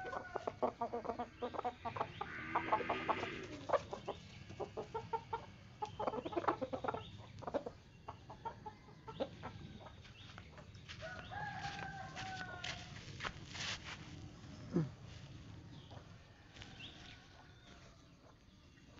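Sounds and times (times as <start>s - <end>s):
long drawn-out chicken call: 0.0s - 6.6s, 11.0s - 13.6s
chickens clucking: 0.0s - 14.0s.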